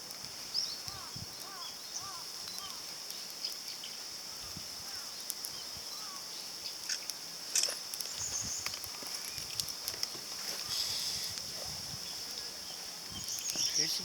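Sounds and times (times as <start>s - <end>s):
insects droning: 0.0s - 14.0s
wood fire crackling: 0.0s - 14.0s
bird calling: 0.6s - 2.9s, 5.8s - 6.8s, 10.4s - 11.3s.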